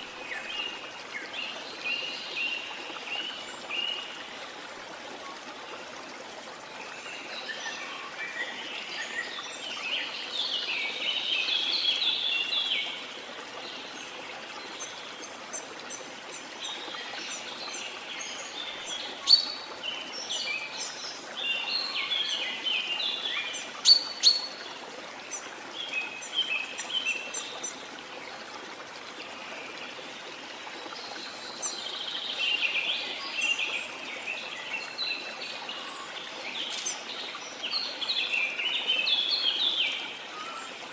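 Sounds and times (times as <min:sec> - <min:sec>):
waterfall water flowing: 0:00.0 - 0:40.9
birds chirping and trilling: 0:34.6 - 0:40.8.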